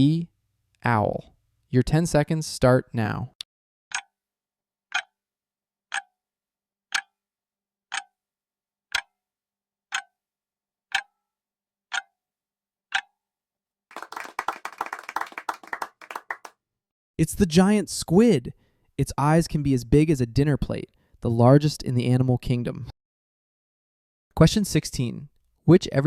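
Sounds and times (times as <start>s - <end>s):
clock ticking: 3.9s - 4.1s, 4.9s - 5.2s, 5.9s - 6.1s, 6.9s - 7.2s, 7.9s - 8.2s, 8.9s - 9.1s, 9.9s - 10.2s, 10.9s - 11.1s, 11.9s - 12.1s, 12.9s - 13.1s
short burst of clapping: 13.9s - 16.5s.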